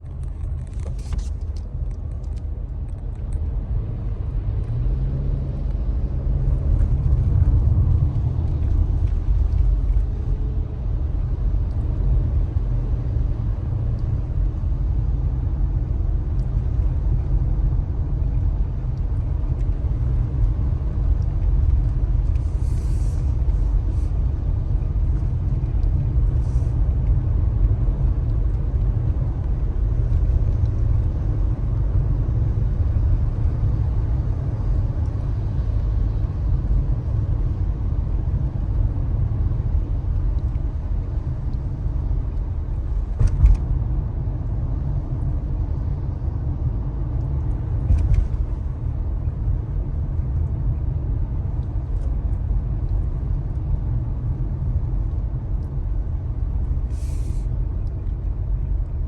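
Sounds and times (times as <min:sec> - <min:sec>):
car rumbling on the road: 0:00.0 - 0:59.0
faint hiss: 0:56.9 - 0:57.5.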